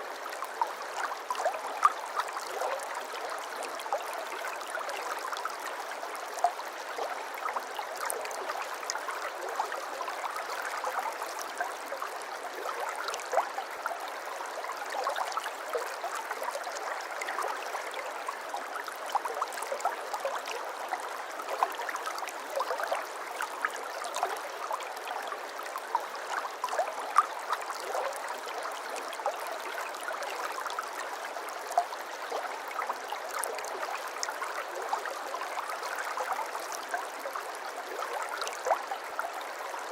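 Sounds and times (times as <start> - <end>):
babbling stream: 0.0 - 39.9.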